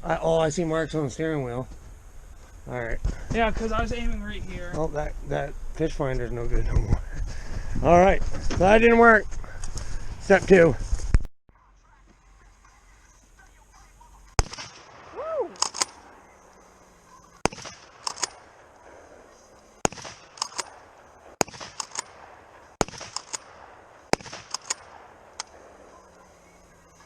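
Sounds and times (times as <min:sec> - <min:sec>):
shotgun firing: 0:14.4 - 0:16.2, 0:17.4 - 0:18.7, 0:19.8 - 0:25.9
sharp clicks: 0:15.6 - 0:16.1, 0:17.4 - 0:18.6, 0:19.8 - 0:25.6.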